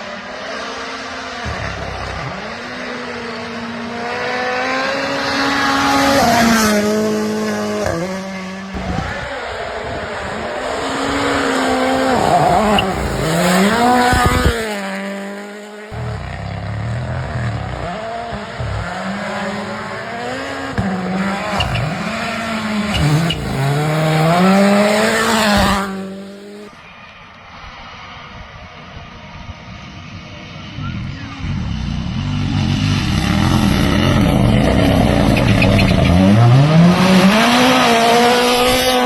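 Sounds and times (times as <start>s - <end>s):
rally car engines revving: 0.0s - 28.9s, 29.5s - 39.0s.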